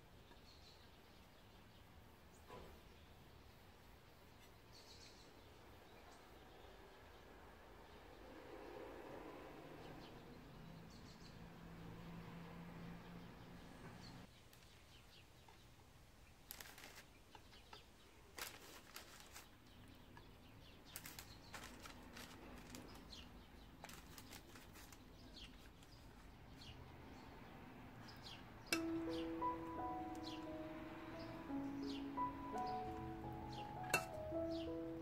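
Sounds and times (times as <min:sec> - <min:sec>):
small birds chirping: 0:00.0 - 0:08.4, 0:09.8 - 0:35.0
brief rustles: 0:18.3 - 0:19.6.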